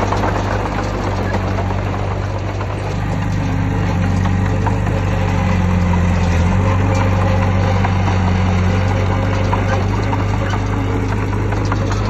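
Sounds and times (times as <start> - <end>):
heavy diesel engine humming: 0.0 - 12.0.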